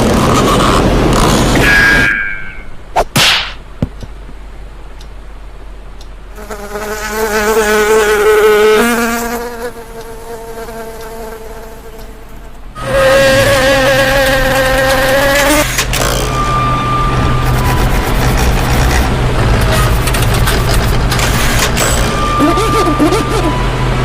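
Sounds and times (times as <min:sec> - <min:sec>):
insect buzzing: 0:06.4 - 0:16.4.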